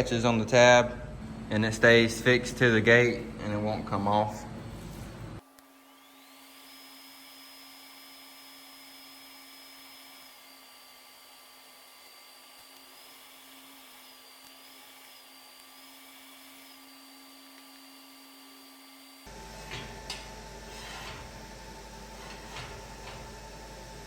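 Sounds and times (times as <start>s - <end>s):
high-pitched motor whine: 5.8s - 24.0s.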